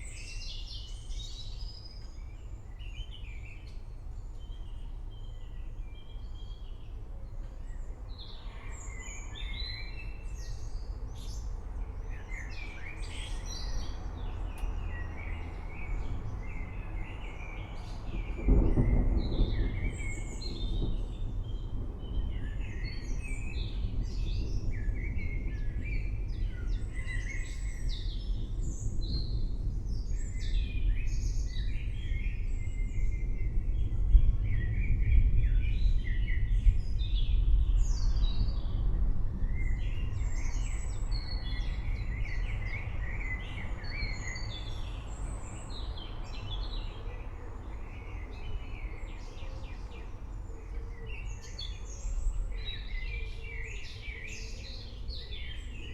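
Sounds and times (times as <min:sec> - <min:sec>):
songbirds chirping and trilling: 0:00.0 - 0:55.9
distant thunder rumble: 0:06.9 - 0:50.5.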